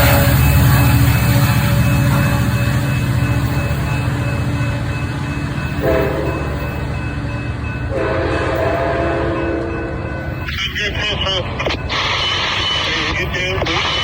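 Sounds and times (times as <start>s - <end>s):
train horn blasts: 0.0s - 2.6s, 5.8s - 6.6s, 7.9s - 9.9s
diesel locomotive rumbling: 0.0s - 14.0s.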